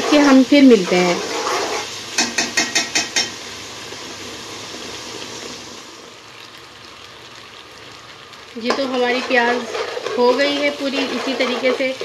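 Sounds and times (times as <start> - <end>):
onion paste frying in oil: 0.0 - 12.0
spoon knocking and scraping pot: 1.2 - 3.4, 8.7 - 12.0.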